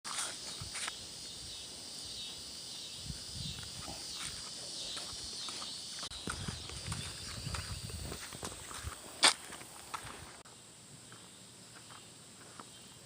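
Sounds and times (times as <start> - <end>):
high-pitched insect chorus: 0.1 - 13.0
footsteps through vegetation: 4.0 - 10.4.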